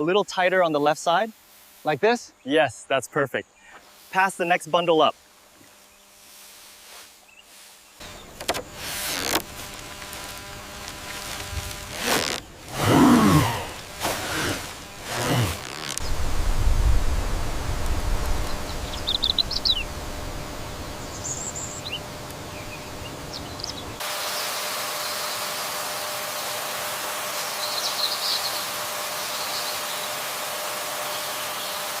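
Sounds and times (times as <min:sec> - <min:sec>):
steady hiss: 0:00.0 - 0:32.0
low wind-like rumble: 0:16.0 - 0:24.0.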